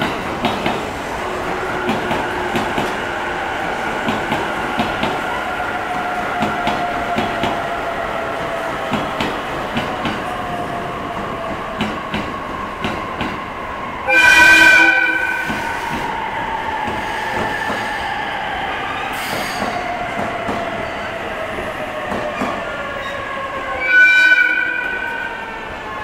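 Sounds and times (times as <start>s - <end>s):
train horn blast: 14.1s - 15.5s, 23.8s - 25.4s.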